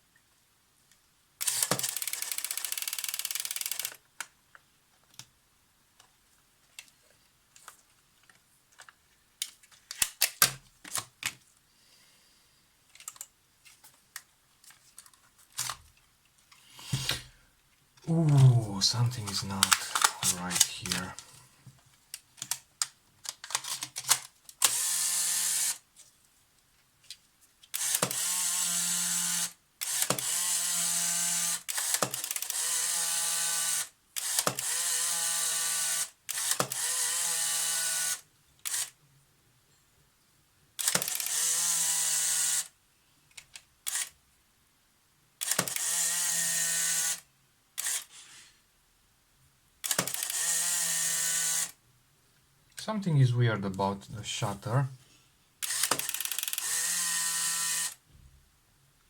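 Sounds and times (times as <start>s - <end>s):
camera motor recocking: 1.4s - 4.0s, 24.6s - 25.8s, 27.7s - 39.0s, 40.8s - 42.7s, 43.8s - 44.1s, 45.4s - 47.2s, 47.8s - 48.1s, 49.8s - 51.8s, 55.6s - 58.0s
camera shutter clicks: 1.4s - 4.0s, 19.6s - 21.0s, 23.5s - 25.8s, 27.7s - 39.0s, 40.8s - 42.7s, 43.8s - 44.1s, 45.4s - 47.2s, 47.8s - 48.1s, 49.8s - 51.8s, 55.6s - 58.0s.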